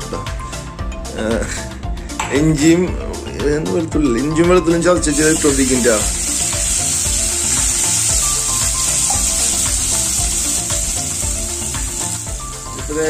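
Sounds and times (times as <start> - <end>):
garlic frying in hot oil: 5.1 - 13.0.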